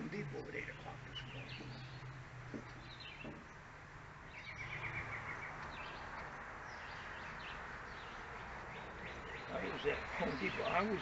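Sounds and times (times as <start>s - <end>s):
birds chirping: 0.0s - 11.0s
bird trill: 4.3s - 11.0s.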